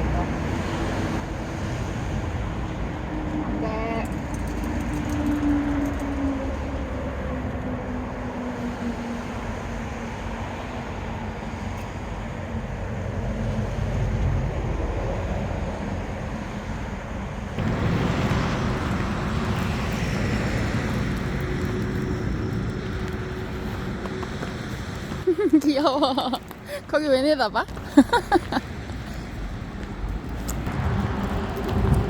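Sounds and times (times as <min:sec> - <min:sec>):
outdoor rumble and hiss: 0:00.0 - 0:32.0
passing vehicle engine: 0:17.4 - 0:32.0.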